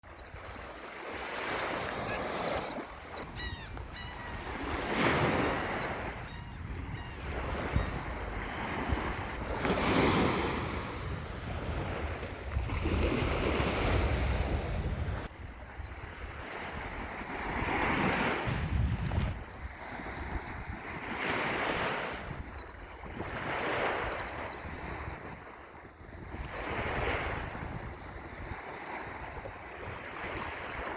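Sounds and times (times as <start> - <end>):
wind buffeting microphone: 0.0 - 30.9
waves breaking on beach: 0.3 - 6.3, 7.2 - 30.9
high bird calls: 2.0 - 5.2, 6.2 - 8.0.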